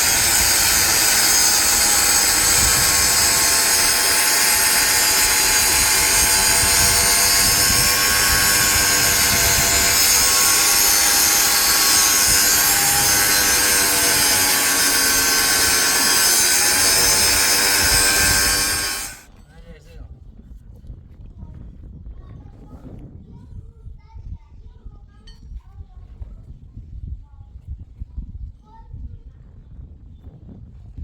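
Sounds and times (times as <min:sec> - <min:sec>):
power tool whining motor: 0:00.0 - 0:19.3.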